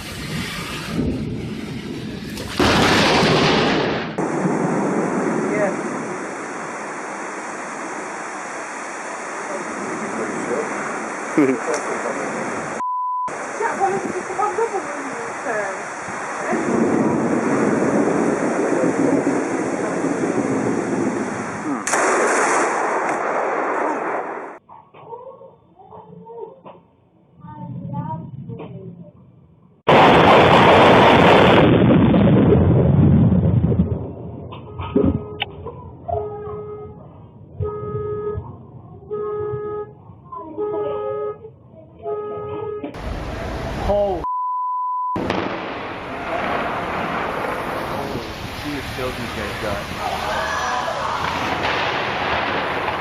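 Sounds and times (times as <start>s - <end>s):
loud thunder: 0.0s - 8.2s, 12.0s - 24.6s, 29.9s - 35.4s, 43.0s - 44.2s, 45.2s - 53.0s
heavy rain pouring: 0.0s - 22.2s, 45.2s - 53.0s
lightning strike crack: 0.0s - 24.6s, 29.9s - 35.4s, 43.0s - 44.2s, 45.2s - 53.0s
car horn honking: 37.6s - 38.5s, 39.1s - 40.0s, 40.6s - 41.4s, 42.0s - 43.0s.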